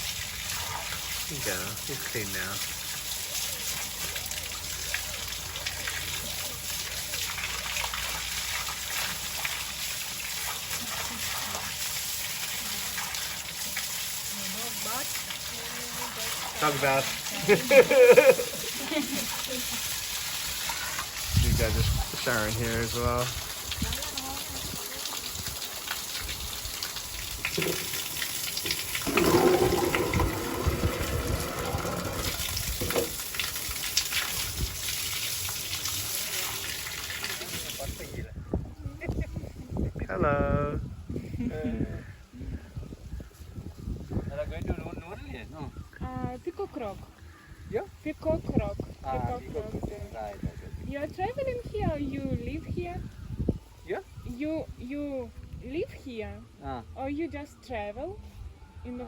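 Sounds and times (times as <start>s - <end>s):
water gushing from shower: 0.0s - 38.3s.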